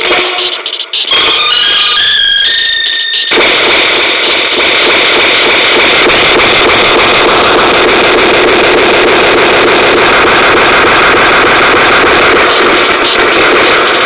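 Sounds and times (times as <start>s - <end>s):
loud steady engine-like noise: 3.3s - 14.0s.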